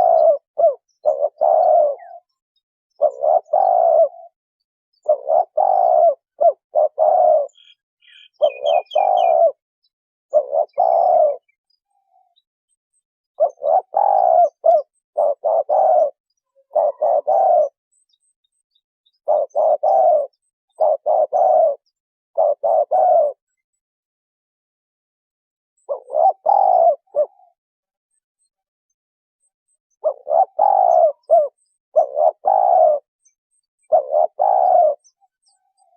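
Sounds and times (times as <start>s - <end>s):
dove cooing: 0.0s - 4.4s, 5.0s - 9.6s, 10.3s - 12.4s, 13.4s - 17.8s, 19.2s - 23.7s, 25.8s - 27.6s, 30.0s - 33.1s, 33.7s - 35.9s
small bird chirping: 0.0s - 23.9s, 25.8s - 35.9s.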